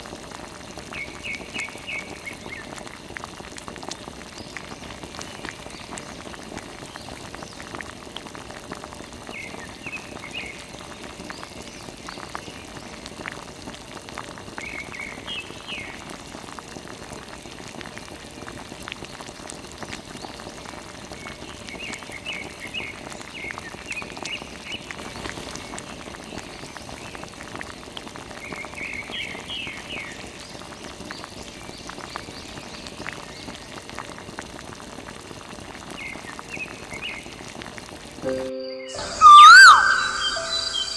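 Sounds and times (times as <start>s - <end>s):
high chirps: 38.2s - 40.9s.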